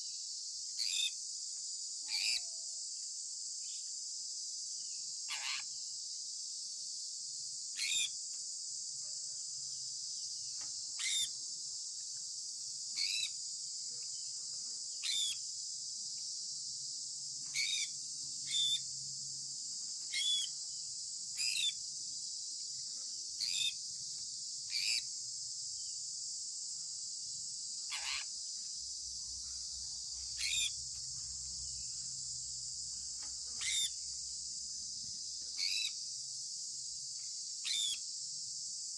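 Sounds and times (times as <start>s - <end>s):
parrot sharp chirps: 15.0s - 15.4s, 20.1s - 20.5s, 27.9s - 28.3s, 30.4s - 30.8s, 33.6s - 34.0s, 37.7s - 38.0s.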